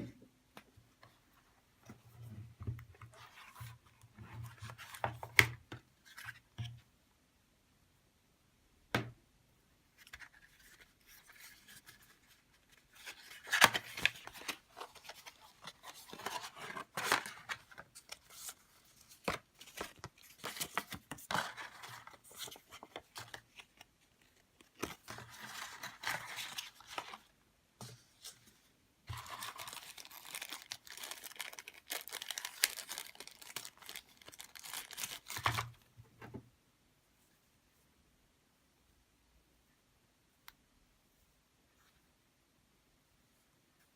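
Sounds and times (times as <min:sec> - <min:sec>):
packaging rustling and tearing: 0:29.1 - 0:35.8.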